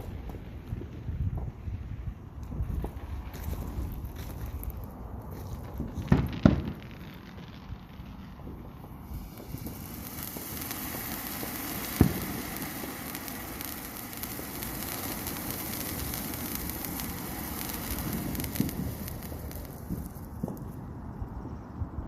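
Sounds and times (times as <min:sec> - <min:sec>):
small firework pops: 0:00.0 - 0:01.6, 0:02.4 - 0:20.9
firework fizzing and crackling: 0:00.0 - 0:21.2
firework bang: 0:05.6 - 0:20.8.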